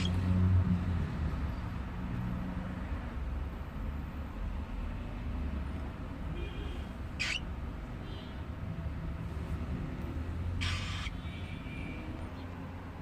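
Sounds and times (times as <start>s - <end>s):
bird giving shrill harsh calls: 0.0s - 0.2s, 7.1s - 7.5s, 10.5s - 11.8s.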